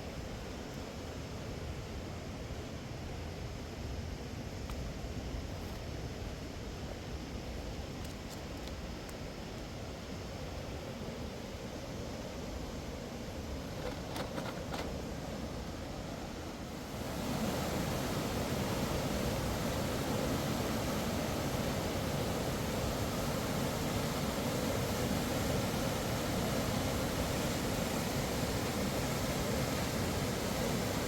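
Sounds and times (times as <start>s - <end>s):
rushing river water: 13.4s - 31.0s.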